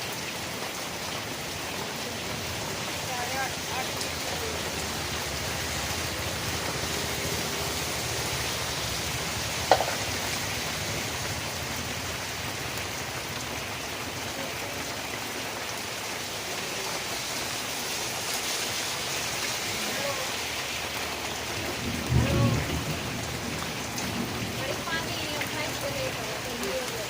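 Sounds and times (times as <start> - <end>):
steady rain falling: 0.0 - 27.0
sharp tap: 9.7 - 10.1.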